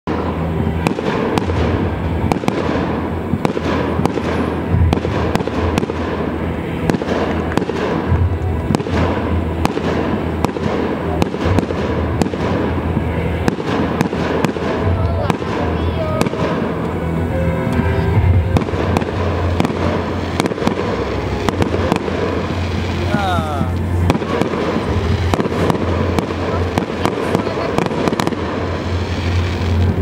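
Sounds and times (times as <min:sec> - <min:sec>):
continuous din: 0:00.1 - 0:30.0
firework shells bursting: 0:00.2 - 0:30.0.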